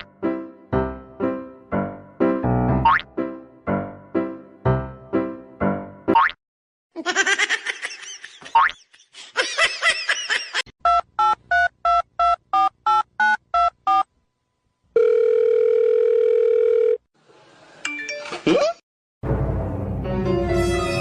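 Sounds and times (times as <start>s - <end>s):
steady dial tone: 15.0s - 17.1s.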